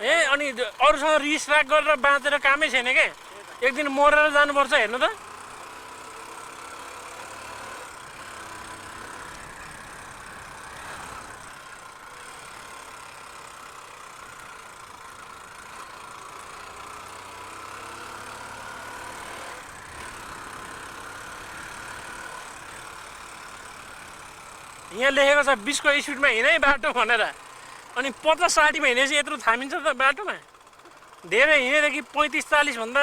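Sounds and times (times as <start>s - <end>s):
motorcycle engine running: 0.0s - 33.0s
wind and road noise: 6.6s - 13.1s.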